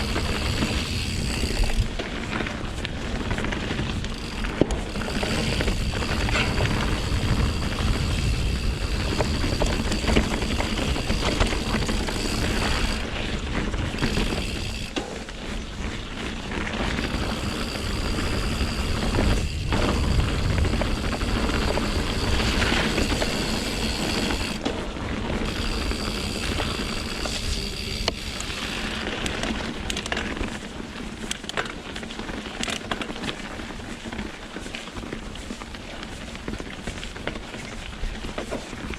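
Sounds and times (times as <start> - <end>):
wind buffeting microphone: 0.0 - 15.0, 17.0 - 29.2
bike knocks and rattles: 0.0 - 38.9
tyres rolling over dirt and rock: 0.0 - 38.9.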